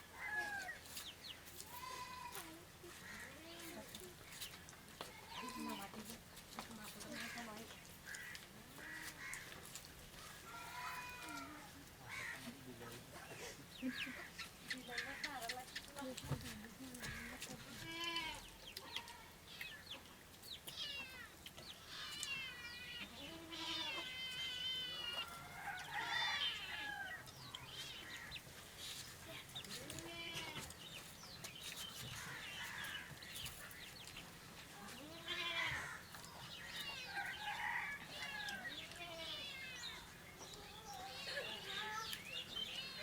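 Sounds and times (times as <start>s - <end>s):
chickens clucking: 2.9s - 17.8s, 23.9s - 39.0s.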